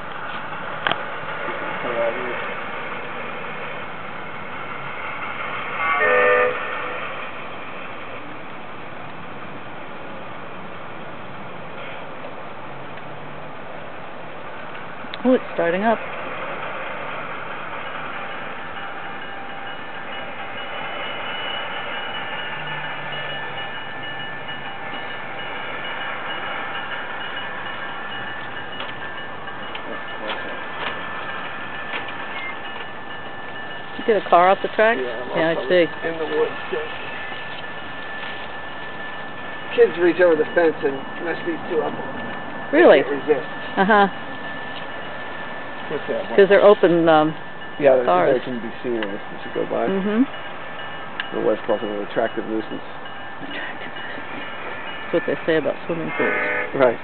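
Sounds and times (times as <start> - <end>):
model train horn toot: 5.8 - 7.2, 56.0 - 57.0.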